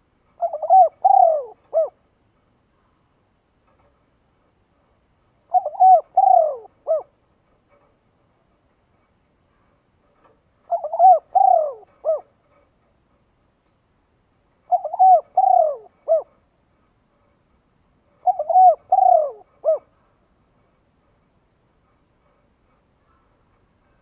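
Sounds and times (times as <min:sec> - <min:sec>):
dove cooing: 0:00.4 - 0:02.0, 0:05.4 - 0:07.2, 0:10.6 - 0:12.3, 0:14.7 - 0:16.4, 0:18.2 - 0:20.0.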